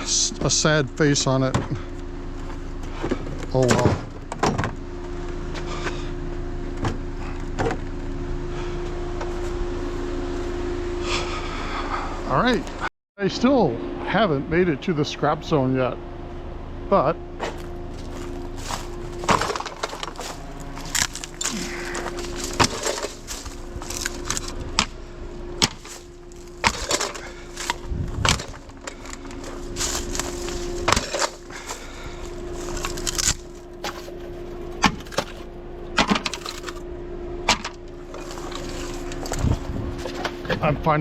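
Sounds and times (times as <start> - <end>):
steady low hum: 0.0 - 41.0
wood scrap knocking and clattering: 18.7 - 24.9, 25.6 - 31.8.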